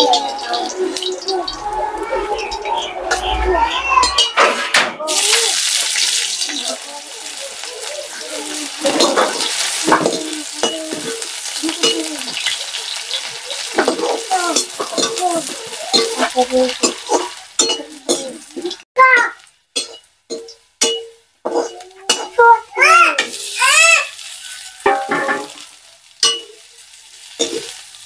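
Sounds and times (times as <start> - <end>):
onions sizzling in hot oil: 0.0 - 1.7, 5.1 - 28.0
skimmer scraping and clinking pan: 4.0 - 18.8, 19.8 - 22.6, 24.2 - 26.7, 27.3 - 27.8.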